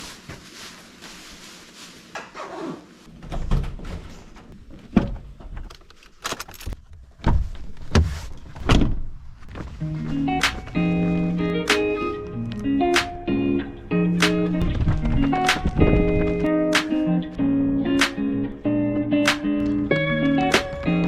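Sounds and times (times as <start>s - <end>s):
music with sustained notes: 9.8s - 21.0s.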